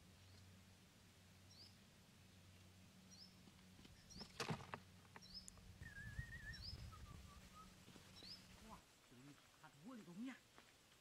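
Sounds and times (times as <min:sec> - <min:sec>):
low steady hum: 0:00.0 - 0:09.8
faint bird chirps: 0:05.2 - 0:08.8
wavering whistled bird call: 0:05.8 - 0:08.4.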